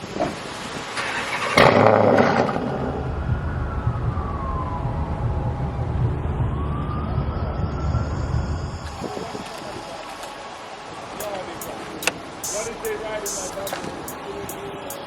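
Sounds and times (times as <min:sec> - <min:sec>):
person talking: 0:12.4 - 0:15.0.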